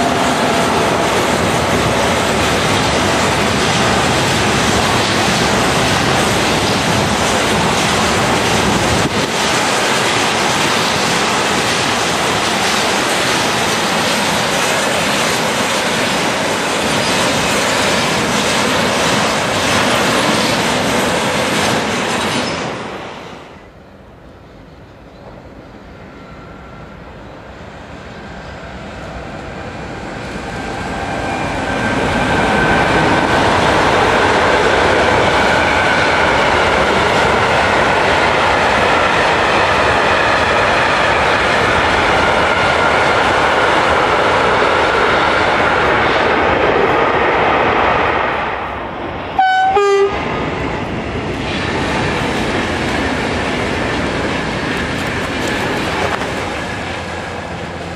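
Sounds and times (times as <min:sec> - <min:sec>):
train wheels on rails: 0:00.0 - 0:57.9.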